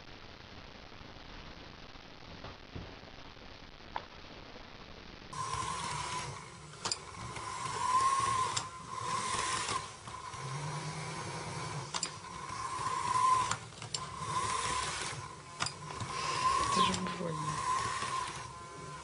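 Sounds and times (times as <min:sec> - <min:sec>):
toy train motor whining: 0:05.4 - 0:19.0
sharp clicks: 0:11.9 - 0:12.2.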